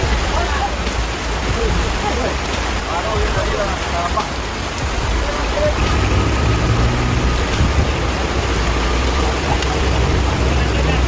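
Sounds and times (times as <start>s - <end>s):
road noise hiss: 0.0s - 11.0s
vehicle engine low rumble: 5.7s - 11.0s.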